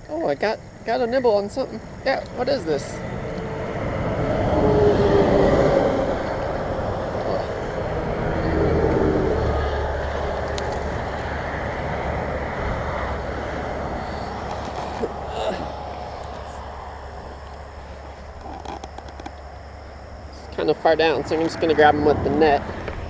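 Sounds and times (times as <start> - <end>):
vehicles driving past: 0.0 - 23.0
low rumble: 1.8 - 18.5.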